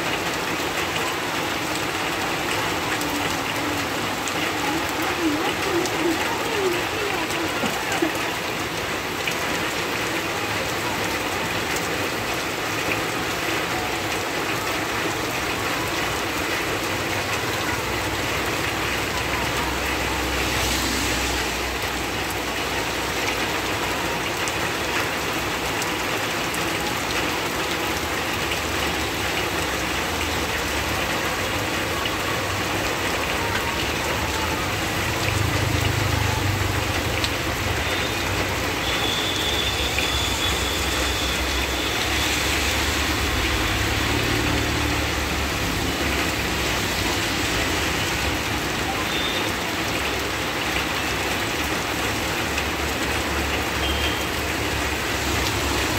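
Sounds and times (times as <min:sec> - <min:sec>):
heavy rain on road: 0:00.0 - 0:55.9.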